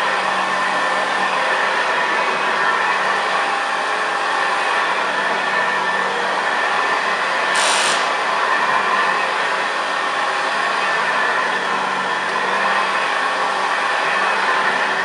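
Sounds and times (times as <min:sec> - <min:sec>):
sharp hiss: 0:07.6 - 0:08.1.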